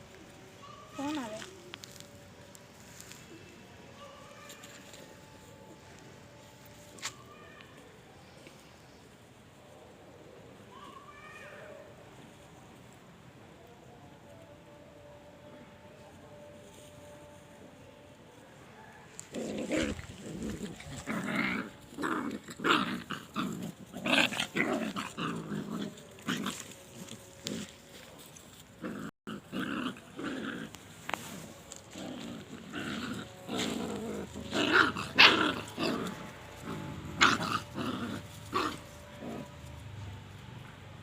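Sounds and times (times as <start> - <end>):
puppies growling and snarling: 19.1 - 39.8.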